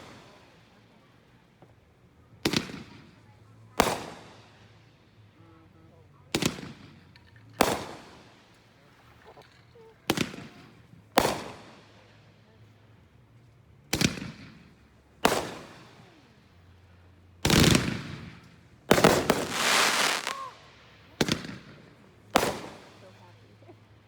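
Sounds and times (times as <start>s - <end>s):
firework bangs: 11.2s - 11.8s, 13.9s - 16.0s, 17.4s - 23.3s
firework crackling: 13.9s - 16.1s, 17.4s - 23.6s.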